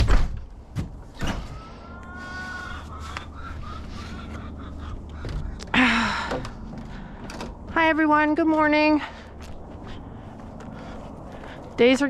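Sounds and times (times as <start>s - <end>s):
steady low hum: 0.0s - 12.0s
chickens calling and clucking: 1.2s - 5.8s.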